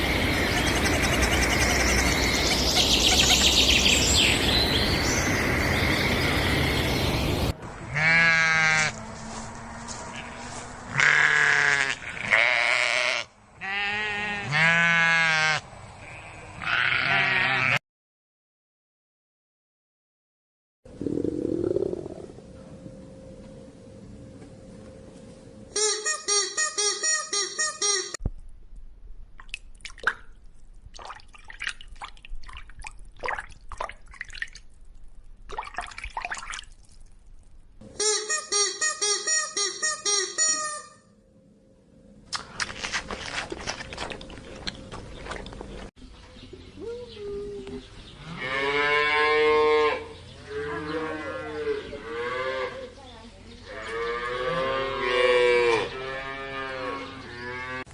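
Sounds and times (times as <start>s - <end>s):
sheep or goat bleating: 7.9s - 9.0s, 10.1s - 17.8s
water dripping and splashing: 29.4s - 37.6s, 42.6s - 45.8s.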